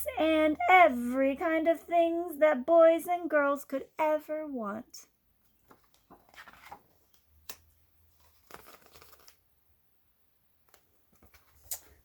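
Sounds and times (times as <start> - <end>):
book page turning: 5.6 - 9.4, 10.6 - 12.0.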